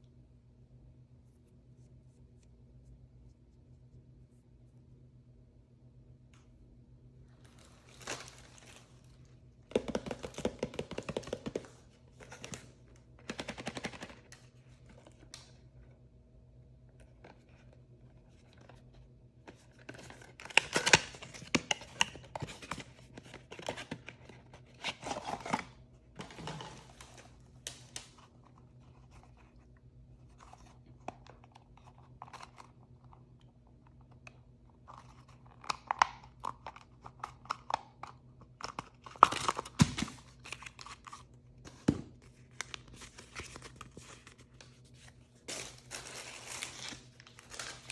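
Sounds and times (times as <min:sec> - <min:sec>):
plastic packaging tearing: 0:07.4 - 0:09.1, 0:45.4 - 0:47.9.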